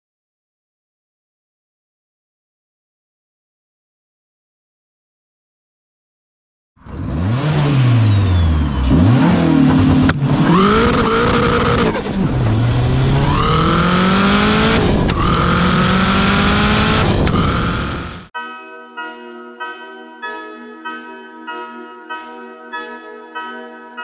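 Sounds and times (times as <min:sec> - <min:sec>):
car engine revving and accelerating: 0:06.8 - 0:18.3.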